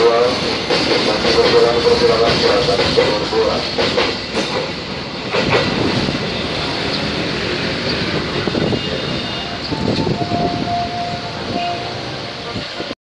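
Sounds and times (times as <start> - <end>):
train wheels clacking over rail joints: 0.0 - 10.2.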